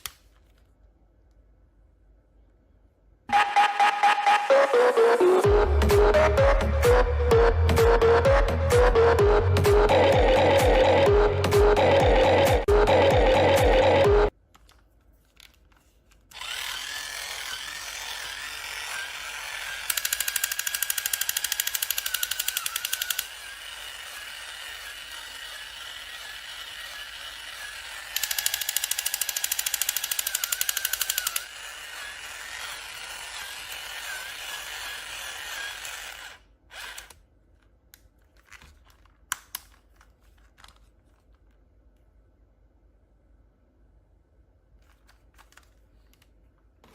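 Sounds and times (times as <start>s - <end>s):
small motor whirring: 16.3s - 37.2s.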